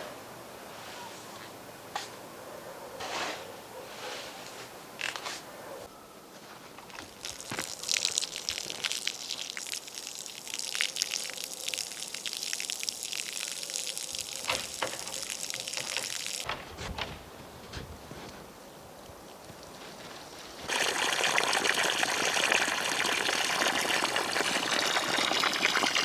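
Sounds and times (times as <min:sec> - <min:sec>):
water pouring and splashing: 0:06.9 - 0:16.5, 0:19.3 - 0:26.0.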